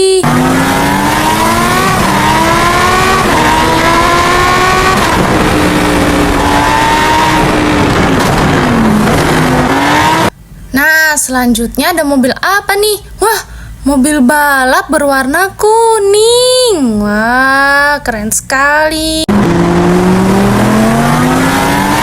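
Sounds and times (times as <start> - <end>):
race car engine revving: 0.2 - 10.4, 19.2 - 22.0.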